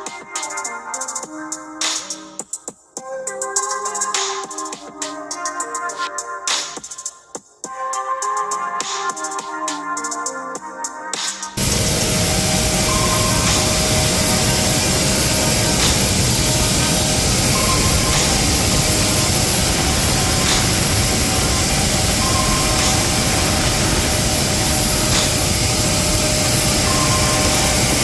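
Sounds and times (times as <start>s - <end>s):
jet turbine running: 11.6s - 28.0s.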